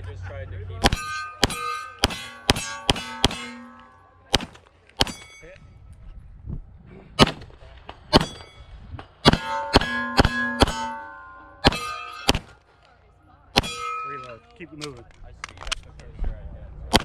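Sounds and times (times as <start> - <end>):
steel plate clanging: 0.8 - 4.1, 5.0 - 5.6, 8.1 - 12.6, 13.6 - 14.6
pistol shots: 0.8 - 5.3, 7.2 - 7.5, 9.2 - 11.0, 11.6 - 12.6, 13.6 - 14.3.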